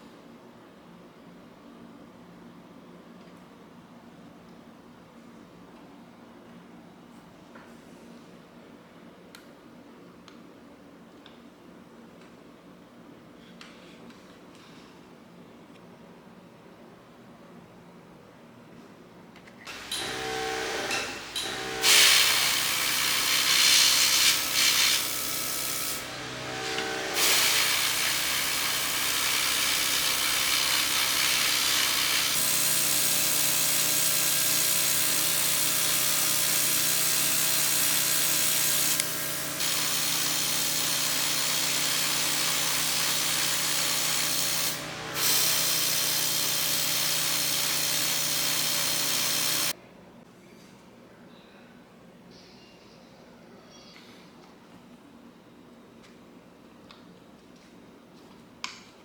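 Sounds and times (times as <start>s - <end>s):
power tool running: 19.7s - 49.8s.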